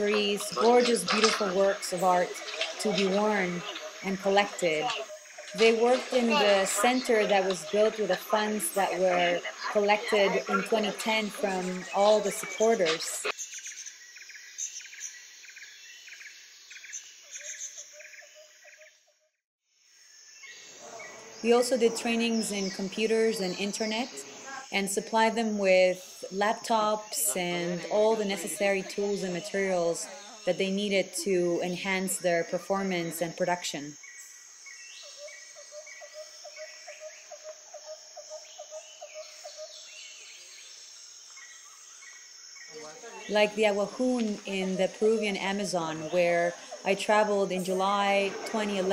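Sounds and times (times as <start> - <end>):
insect hiss: 0.0 - 19.0, 19.6 - 48.9
insect triple-pulsed chirp: 19.8 - 48.9.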